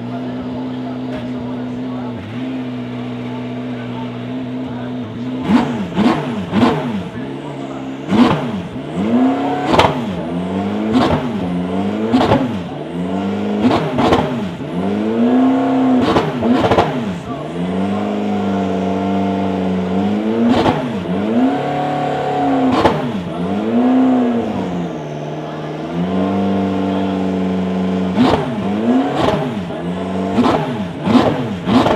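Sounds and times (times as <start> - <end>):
race cars passing at speed: 0.0 - 31.9.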